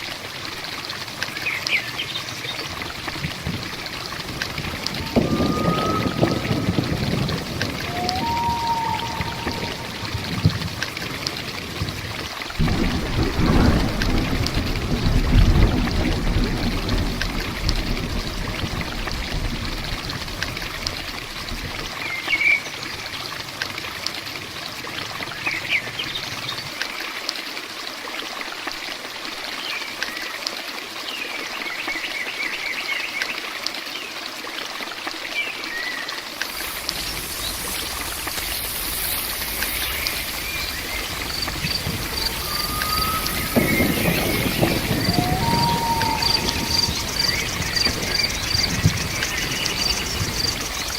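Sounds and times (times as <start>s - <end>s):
rain and running water: 0.0s - 50.9s
birds chirping: 4.9s - 10.6s, 36.5s - 50.9s
high insect-like hiss: 36.4s - 50.9s.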